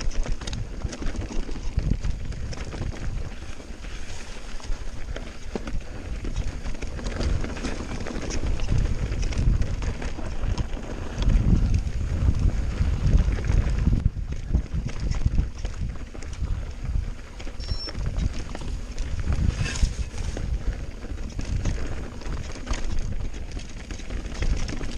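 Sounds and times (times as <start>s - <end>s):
bike tyres on rock and gravel: 0.0s - 24.9s
wind buffeting microphone: 0.0s - 24.9s.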